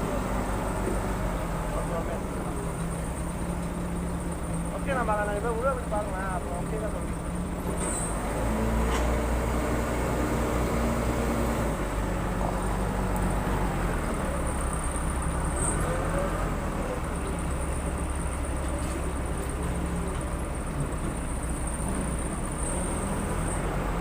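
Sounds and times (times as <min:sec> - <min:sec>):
backhoe diesel engine under load: 0:00.0 - 0:24.0.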